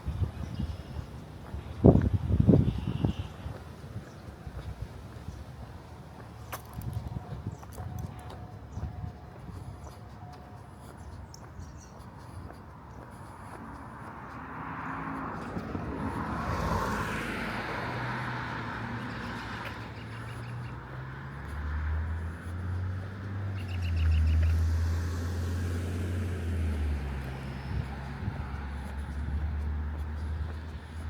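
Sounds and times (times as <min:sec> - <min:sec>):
passing car engine hum: 0:13.8 - 0:31.0
bird chirping: 0:23.5 - 0:24.7.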